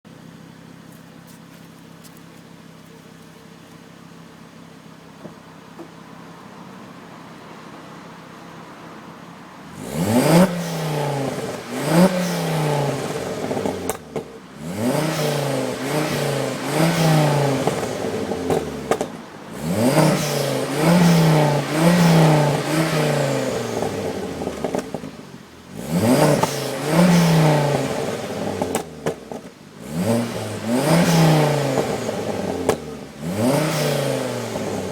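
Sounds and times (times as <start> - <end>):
car engine idling: 0.1 - 34.9
engine throttle blips: 9.7 - 34.9.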